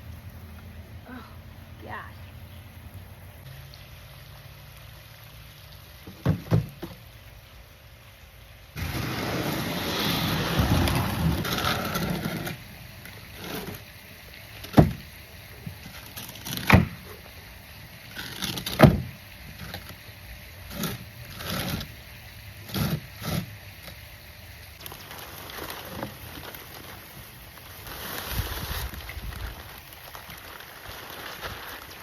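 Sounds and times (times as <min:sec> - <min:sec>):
sharp knocks and thumps: 0:06.0 - 0:07.0
soil rustling and scraping: 0:08.8 - 0:14.0, 0:15.6 - 0:17.4, 0:18.0 - 0:20.0, 0:20.6 - 0:24.1, 0:24.8 - 0:32.0.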